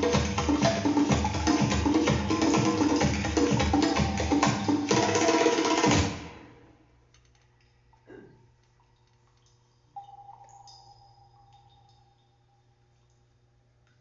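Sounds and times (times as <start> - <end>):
wood block percussion music: 0.0 - 6.3
low steady hum: 6.1 - 14.0
faint ringing note: 10.0 - 12.9.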